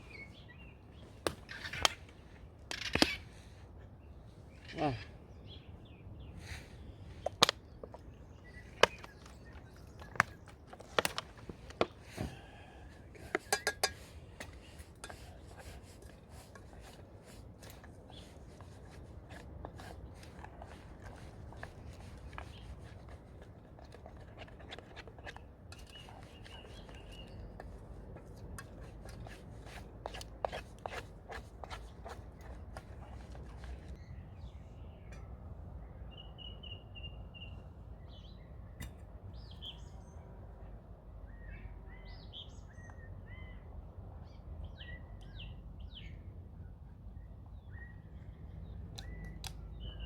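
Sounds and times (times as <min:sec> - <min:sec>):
spoon scraping cooking pot: 0:13.2 - 0:17.0.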